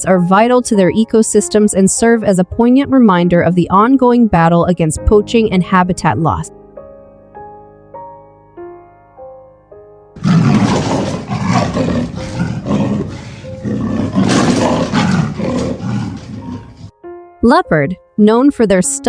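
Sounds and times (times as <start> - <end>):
large animal roaring: 10.2 - 16.9.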